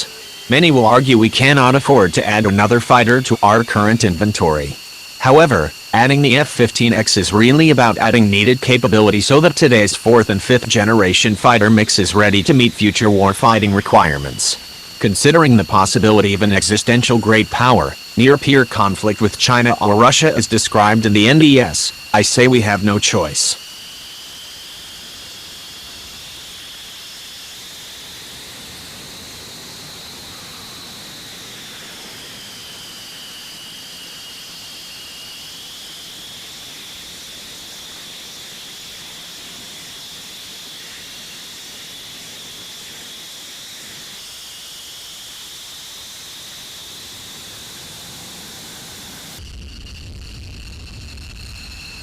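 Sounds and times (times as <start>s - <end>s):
jet engine hiss and whine: 0.0s - 52.0s.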